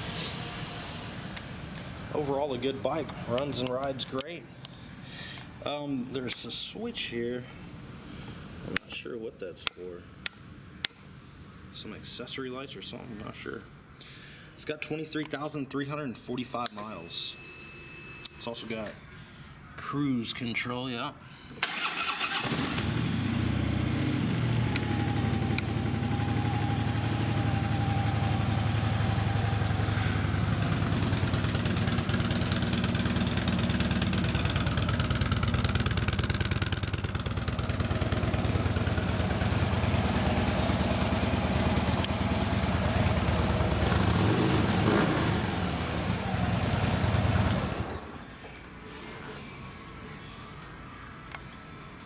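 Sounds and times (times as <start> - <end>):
motorcycle engine idling: 23.3 - 47.9.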